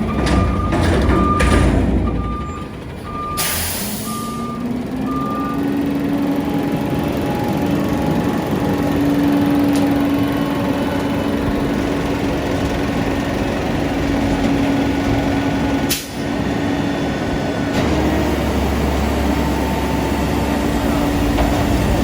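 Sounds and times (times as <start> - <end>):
garbage truck engine running: 0.0 - 22.0.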